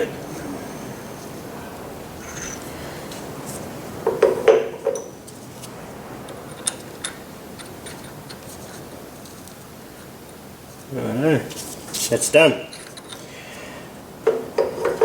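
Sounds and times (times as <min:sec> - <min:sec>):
metal tools knocking on metal: 0:04.0 - 0:05.1, 0:14.2 - 0:15.0.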